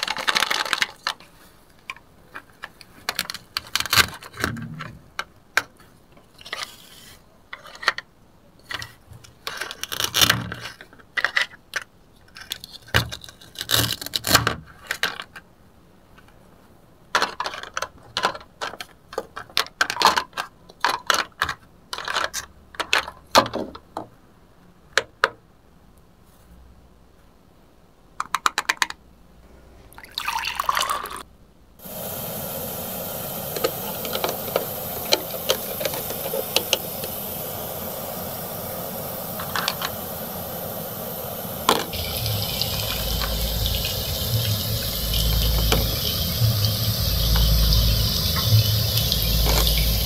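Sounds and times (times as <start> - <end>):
plastic toy food clattering: 0.0 - 5.8, 7.5 - 15.5, 17.1 - 23.8, 28.2 - 29.0.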